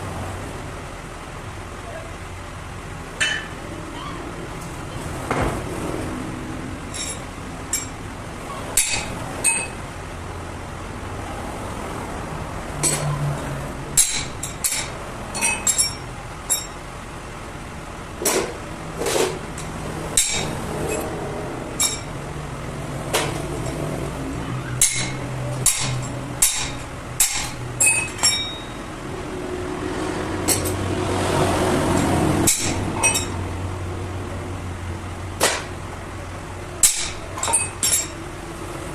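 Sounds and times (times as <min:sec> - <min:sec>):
hand tools tapping metal: 0:03.2 - 0:03.6, 0:06.9 - 0:08.0, 0:08.8 - 0:09.8, 0:12.8 - 0:13.3, 0:13.9 - 0:16.8, 0:18.2 - 0:22.2, 0:23.1 - 0:24.0, 0:24.6 - 0:28.8, 0:30.4 - 0:30.9, 0:31.8 - 0:33.4, 0:35.4 - 0:35.7, 0:36.8 - 0:38.2.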